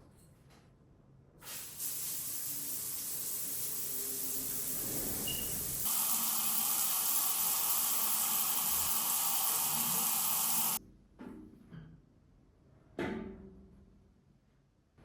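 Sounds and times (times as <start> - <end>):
steady hissing spray: 1.4 - 10.8.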